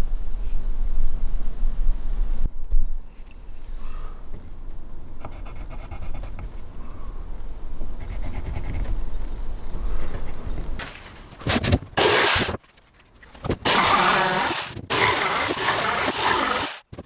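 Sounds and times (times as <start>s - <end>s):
scraping and rubbing on wood: 10.8s - 17.0s.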